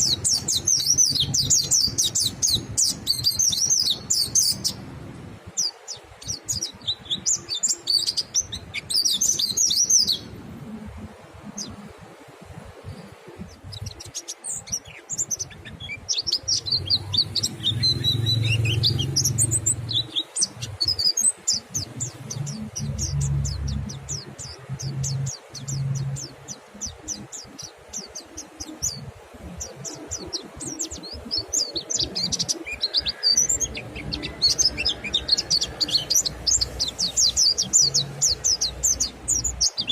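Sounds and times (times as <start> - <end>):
birds twittering: 0.0 - 39.9.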